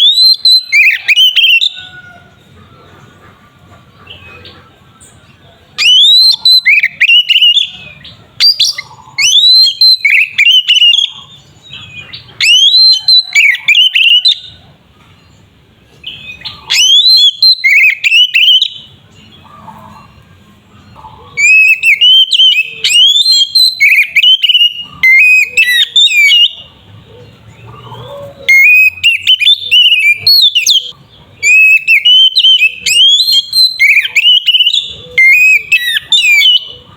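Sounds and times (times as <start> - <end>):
bird singing whistled phrases: 0.0 - 2.0, 5.8 - 14.6, 16.0 - 18.9, 21.4 - 26.7, 28.4 - 36.9.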